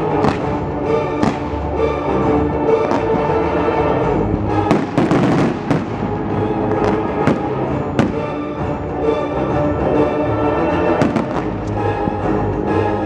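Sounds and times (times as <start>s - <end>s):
fireworks bangs and crackling: 0.0s - 2.0s, 2.7s - 8.8s, 10.9s - 11.8s
loud music: 0.0s - 13.0s.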